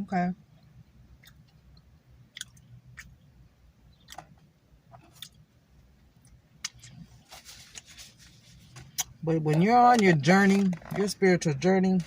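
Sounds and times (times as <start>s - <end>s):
mouth clicks while chewing: 1.2s - 3.2s.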